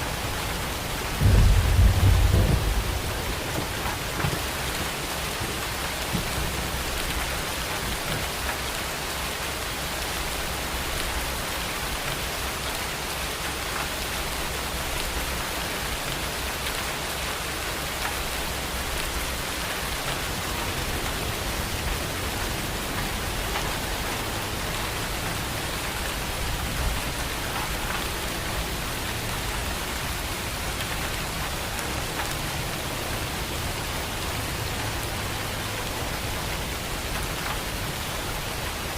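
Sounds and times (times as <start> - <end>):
rain pattering on a surface: 0.0 - 38.9
loud raindrop hits: 1.2 - 6.4.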